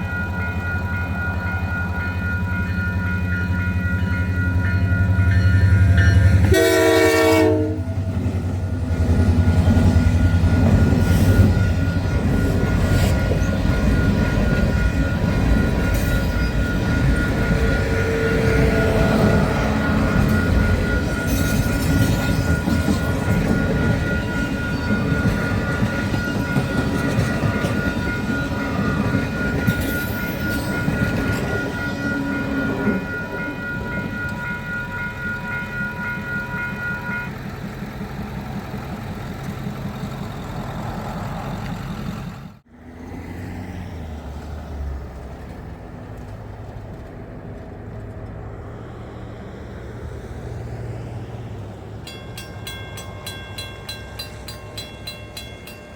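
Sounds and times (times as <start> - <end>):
high ringing tones: 0.0 - 37.6
train wheels rumbling and clicking: 0.0 - 42.7, 44.4 - 48.8.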